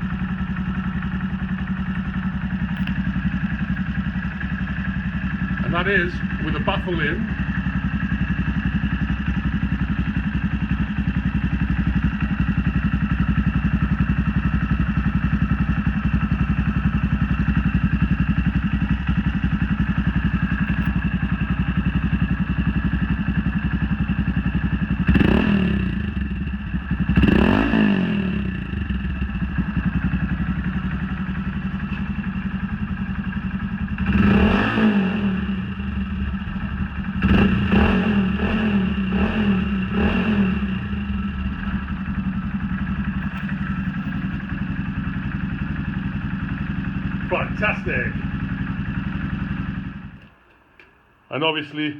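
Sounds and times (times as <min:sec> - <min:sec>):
motorcycle engine idling: 0:00.0 - 0:51.2
engine revs: 0:25.0 - 0:26.4, 0:27.0 - 0:29.2, 0:34.0 - 0:41.9.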